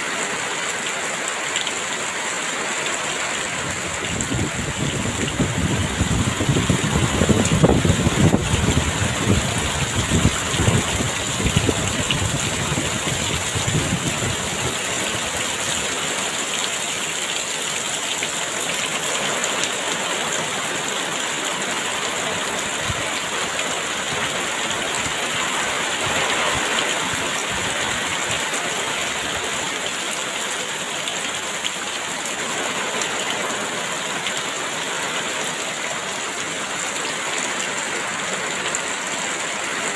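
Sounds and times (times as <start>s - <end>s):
heavy rain falling: 0.0s - 39.9s
strong wind rumbling: 3.5s - 15.4s.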